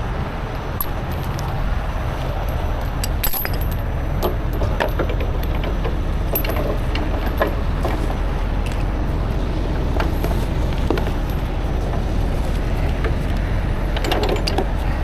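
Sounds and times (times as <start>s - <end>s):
vehicle engine rumble: 0.0s - 15.0s
light metallic clinks and rattles: 2.4s - 8.9s, 10.0s - 14.9s.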